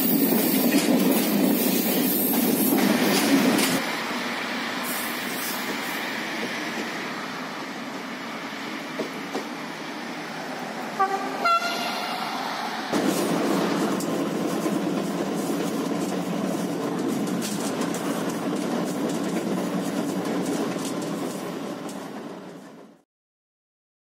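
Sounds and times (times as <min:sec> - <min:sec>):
train rumbling on track: 0:00.0 - 0:23.0
train horn toots: 0:11.0 - 0:12.3.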